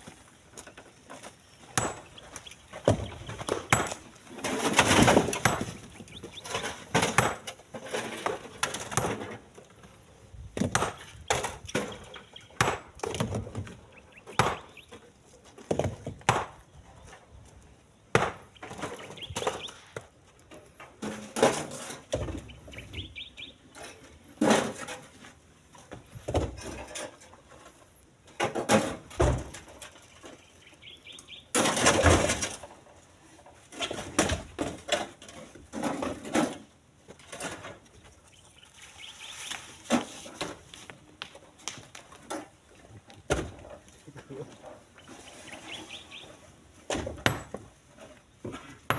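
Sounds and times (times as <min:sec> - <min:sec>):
stones clattering into truck bed: 0:01.7 - 0:09.5, 0:28.3 - 0:30.0, 0:31.5 - 0:32.8.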